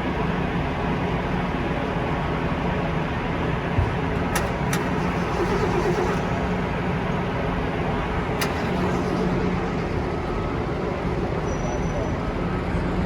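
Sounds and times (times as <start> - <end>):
low hum: 4.0 - 11.5.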